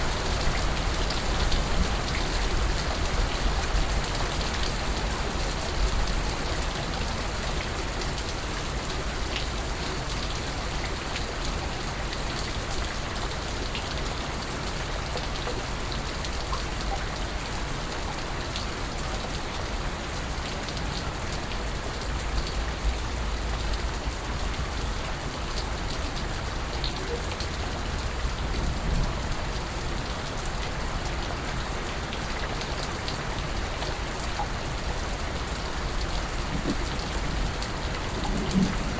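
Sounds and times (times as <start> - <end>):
steady rain hiss: 0.0 - 38.9
raindrops ticking: 35.4 - 38.9.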